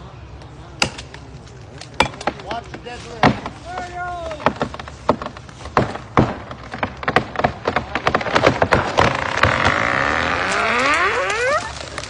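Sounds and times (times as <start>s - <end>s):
tree falling: 0.8s - 12.0s
wood cracking and splintering: 1.9s - 12.0s.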